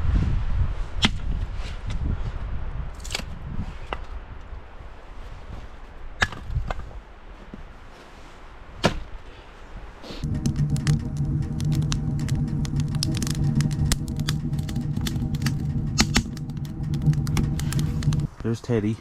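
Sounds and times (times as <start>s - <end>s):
sharp knocks and clicks: 10.2s - 18.3s
low rumble: 10.2s - 18.5s.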